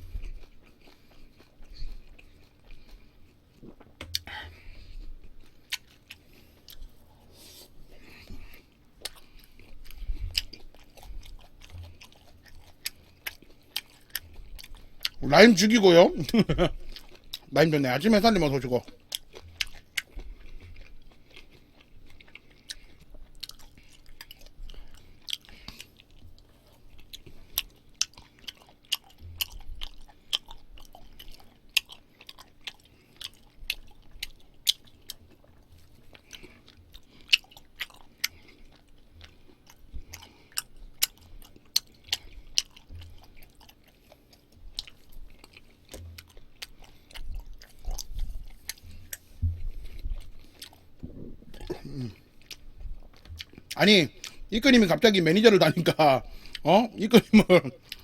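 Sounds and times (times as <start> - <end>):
close chewing and biting: 0.0 - 58.0
wet mouth clicks and smacks: 3.6 - 4.3.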